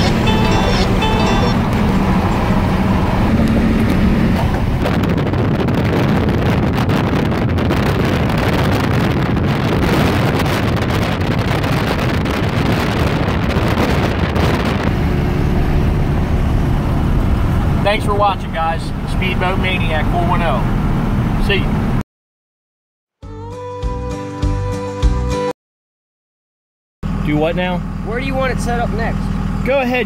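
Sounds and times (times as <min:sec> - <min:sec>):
vehicle engine running: 0:00.0 - 0:06.2, 0:14.7 - 0:21.9, 0:27.0 - 0:30.0
wind buffeting microphone: 0:00.0 - 0:22.0.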